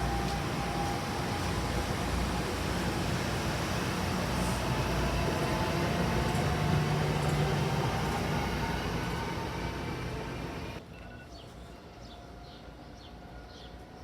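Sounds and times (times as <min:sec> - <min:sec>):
train passing close by: 0:00.0 - 0:14.0.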